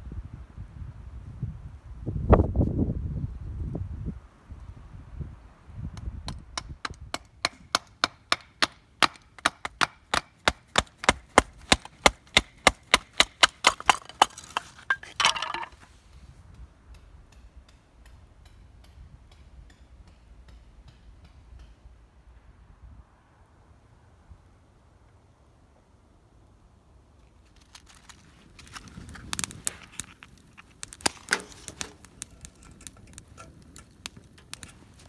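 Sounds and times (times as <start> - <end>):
fast sharp knocks: 7.4 - 14.7.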